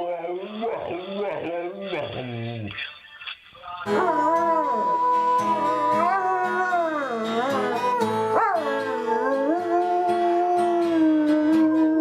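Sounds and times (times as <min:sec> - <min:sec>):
music: 0:03.8 - 0:12.0
dog howling: 0:03.9 - 0:12.0.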